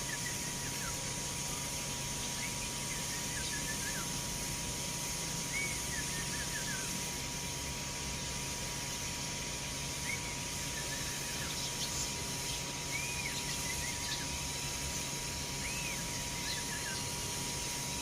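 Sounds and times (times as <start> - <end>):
sparrows chirping: 10.0 - 14.5, 15.6 - 17.2.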